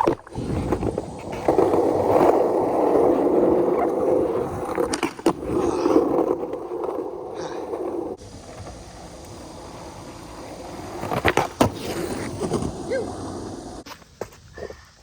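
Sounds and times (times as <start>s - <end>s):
skateboard wheels rolling on concrete: 0.0s - 15.0s.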